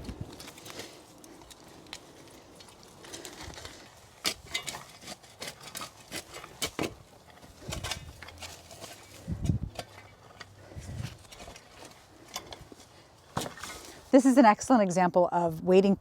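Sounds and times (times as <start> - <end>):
shovel scraping in soil: 3.1 - 14.2.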